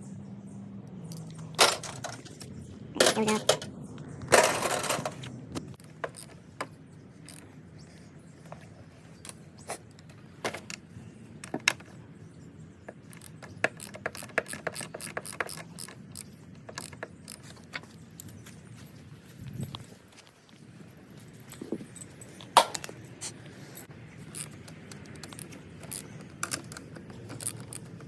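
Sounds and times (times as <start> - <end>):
metal clinks and knocks: 1.1 - 3.7, 4.3 - 5.3, 21.1 - 28.0
ratchet wrench clicking: 13.1 - 17.5, 24.2 - 28.0.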